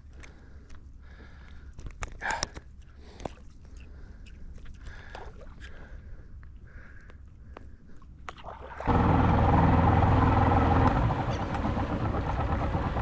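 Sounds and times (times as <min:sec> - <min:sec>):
boat motor running: 0:08.9 - 0:13.0.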